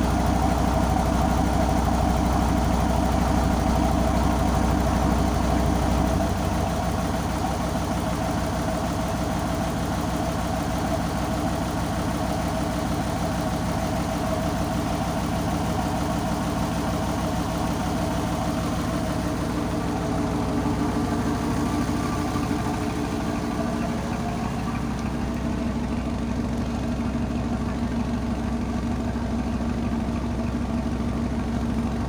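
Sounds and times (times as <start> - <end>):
boat engine running at low revs: 11.8 - 32.0.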